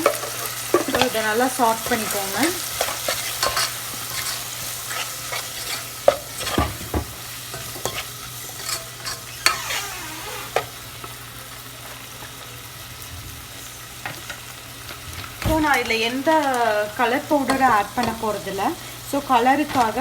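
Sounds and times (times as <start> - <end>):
vegetables sizzling in a pan: 0.0 - 20.0
utensil scraping and knocking pan: 2.7 - 9.8.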